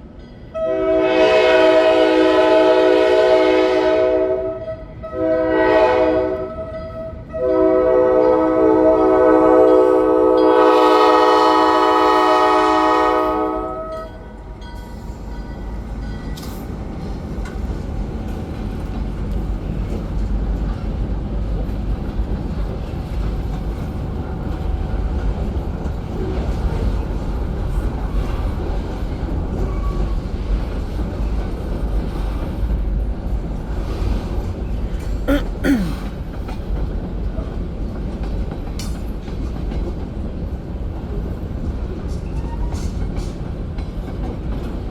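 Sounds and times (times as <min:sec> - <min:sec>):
train rumbling past: 0:00.0 - 0:35.3
locomotive air horn: 0:00.6 - 0:14.1
train wheel squeal: 0:29.5 - 0:30.3, 0:42.1 - 0:43.4.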